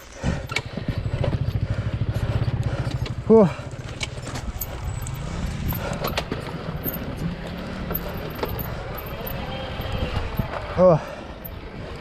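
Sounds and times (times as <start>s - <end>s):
motorcycle engine chugging: 0.0s - 10.0s
motorcycle knocking on rough ground: 0.6s - 4.6s.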